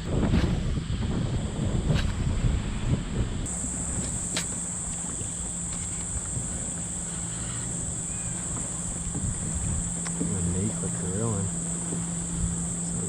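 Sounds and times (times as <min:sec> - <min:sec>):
choppy water: 0:00.0 - 0:13.0
wind: 0:00.0 - 0:13.0
high-pitched whine: 0:03.4 - 0:13.0.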